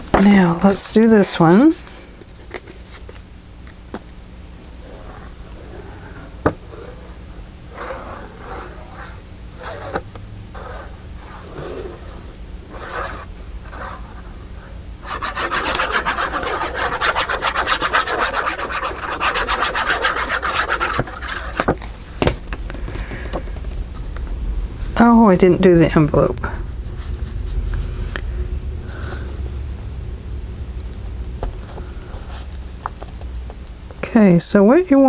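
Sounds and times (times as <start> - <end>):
rubbing on paper: 15.0 - 21.8
paper being handled: 15.0 - 22.4.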